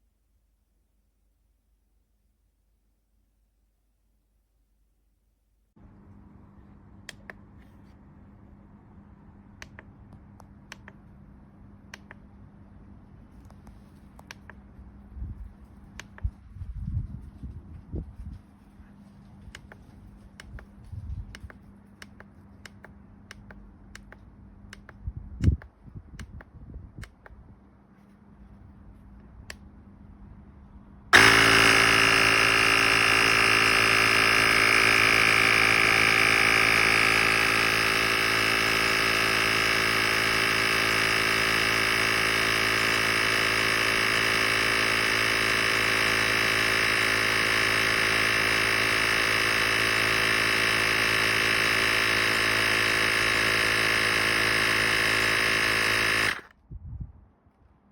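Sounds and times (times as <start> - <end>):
faint regular ticks: 19.2 - 25.0
air compressor buzzing hum: 31.1 - 56.5.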